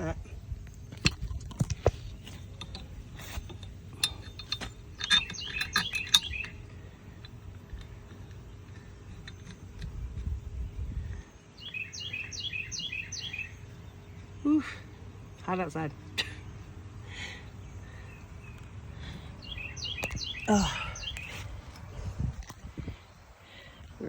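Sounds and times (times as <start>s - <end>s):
songbird chirping: 0.6s - 24.0s
plastic parts and screws clicking: 0.9s - 10.4s.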